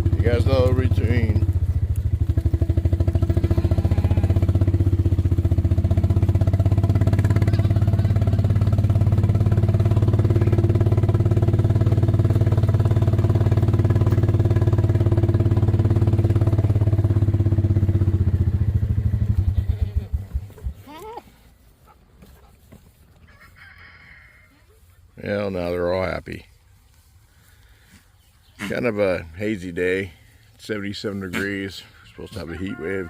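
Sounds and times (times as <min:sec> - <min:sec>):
engine idling: 0:00.0 - 0:20.8.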